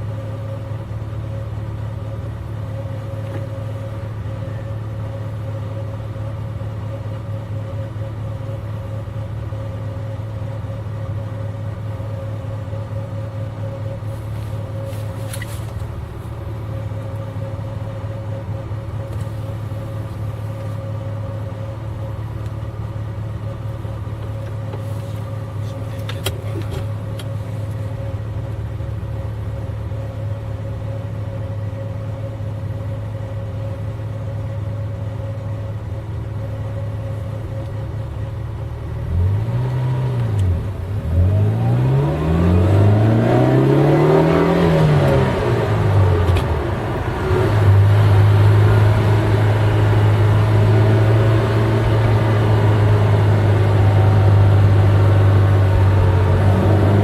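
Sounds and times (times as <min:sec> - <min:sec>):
car engine revving: 0:38.8 - 0:57.0.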